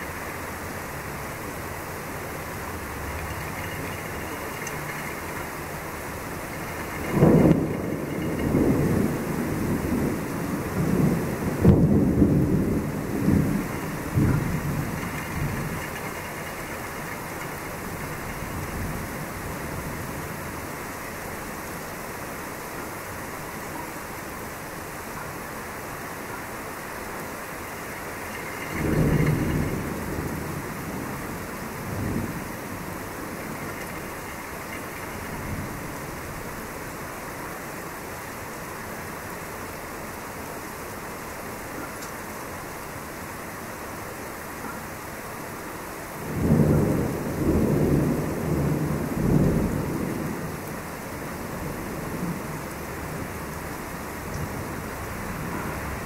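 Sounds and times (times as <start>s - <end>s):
steady rain: 0.0s - 56.0s
thunder rumbling: 0.9s - 21.1s, 27.5s - 37.3s, 46.2s - 56.0s.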